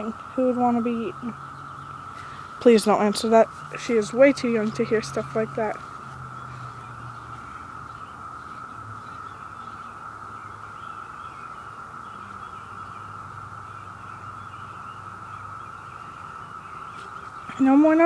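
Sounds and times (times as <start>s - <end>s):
high steady drone: 0.0s - 8.7s
faint chirps: 0.0s - 18.0s.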